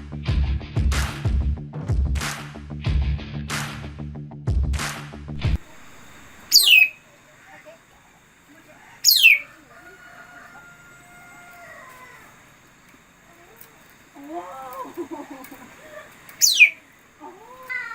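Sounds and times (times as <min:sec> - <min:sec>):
sharp falling bird calls: 0:06.5 - 0:07.0, 0:08.9 - 0:12.6, 0:14.7 - 0:17.0
faint whistled notes: 0:06.6 - 0:07.0.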